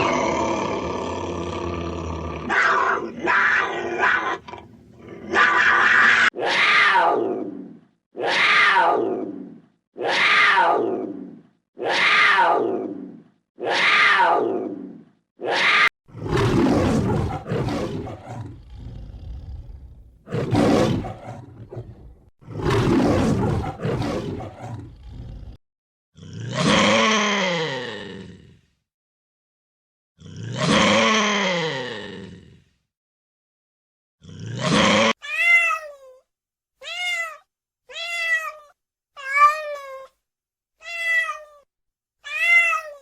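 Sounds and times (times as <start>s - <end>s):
big cat roaring: 0.0s - 25.6s, 26.2s - 28.7s, 30.2s - 32.7s, 34.2s - 35.2s.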